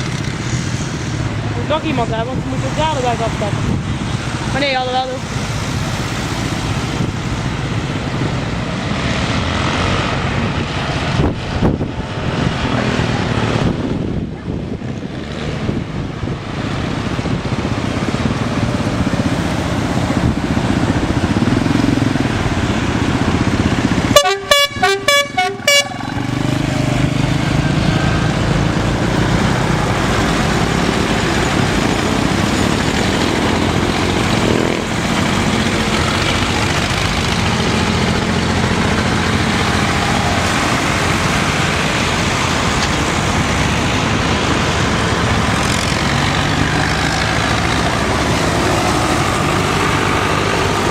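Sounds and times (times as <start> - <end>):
tractor engines running: 0.0 - 50.9
horn tooting: 24.1 - 26.3.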